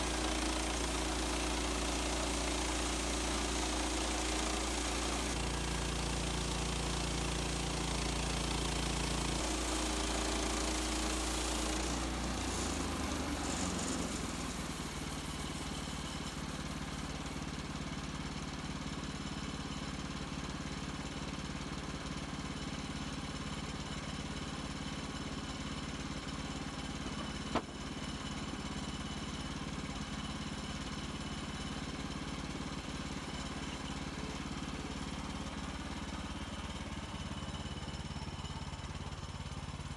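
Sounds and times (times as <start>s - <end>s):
bandsaw blade cutting log: 0.0s - 18.1s, 31.9s - 37.4s
engine running steadily: 0.0s - 39.9s.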